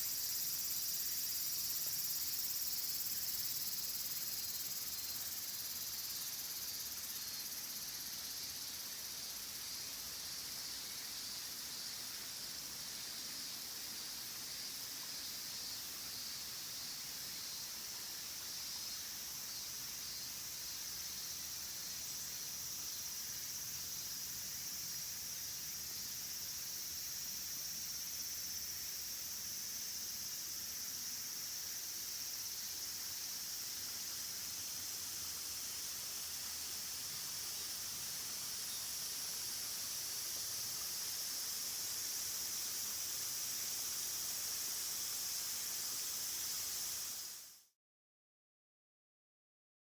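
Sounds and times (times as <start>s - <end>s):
waterfall hiss: 0.0s - 26.7s, 31.2s - 47.7s
insects chirring: 0.0s - 47.6s.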